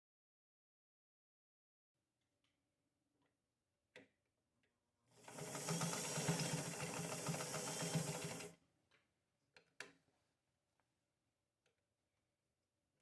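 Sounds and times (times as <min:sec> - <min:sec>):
sewing machine stitching: 0:05.2 - 0:08.6.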